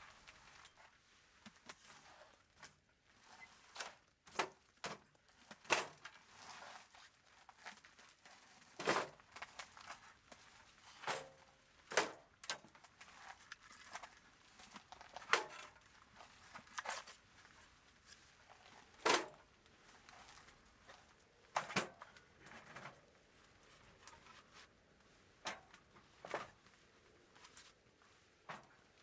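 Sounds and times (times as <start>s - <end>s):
rustling and crinkling: 0.0s - 29.0s.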